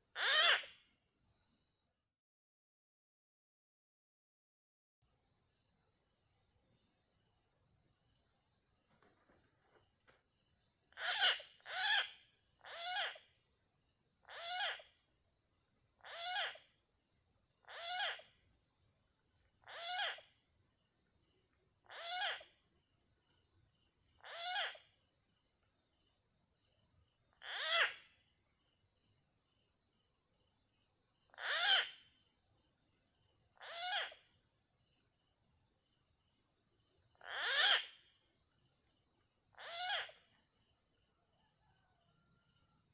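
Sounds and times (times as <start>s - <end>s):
high insect drone: 5.0s - 42.9s
animal calling: 17.7s - 18.3s, 19.7s - 20.3s, 39.6s - 40.2s.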